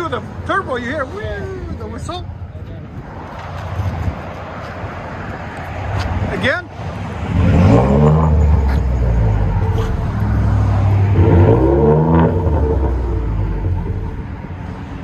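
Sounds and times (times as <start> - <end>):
truck engine revving: 7.2 - 14.5.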